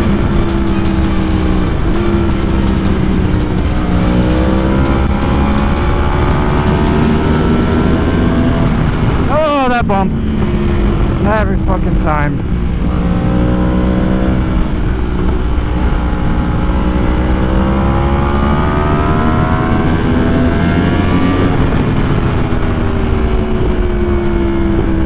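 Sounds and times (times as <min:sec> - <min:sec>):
motorcycle engine accelerating: 0:00.0 - 0:25.0
wind rushing over microphone: 0:07.5 - 0:17.7.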